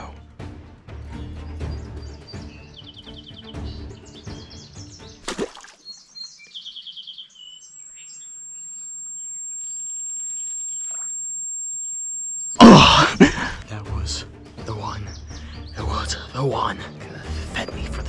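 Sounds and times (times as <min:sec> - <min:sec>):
background music: 0:00.0 - 0:05.6, 0:12.6 - 0:18.0
small birds chirping: 0:01.0 - 0:12.6, 0:13.7 - 0:18.0
high-pitched steady tone: 0:07.7 - 0:12.7.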